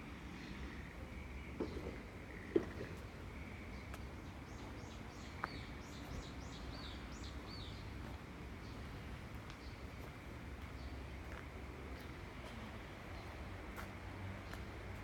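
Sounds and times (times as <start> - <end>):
small bird chirping song: 0.4 - 11.4.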